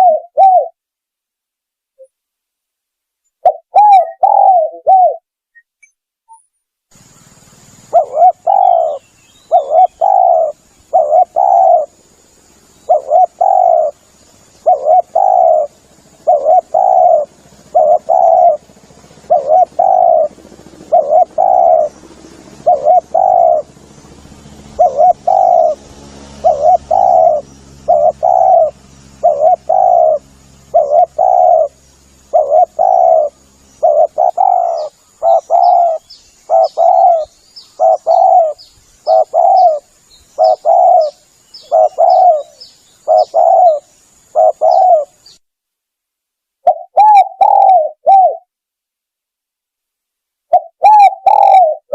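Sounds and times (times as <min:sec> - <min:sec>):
dove cooing: 0:00.0 - 0:00.8, 0:03.4 - 0:05.2, 0:07.8 - 0:12.1, 0:12.8 - 0:23.7, 0:24.8 - 0:25.8, 0:26.4 - 0:45.2, 0:46.6 - 0:48.5, 0:50.5 - 0:51.9.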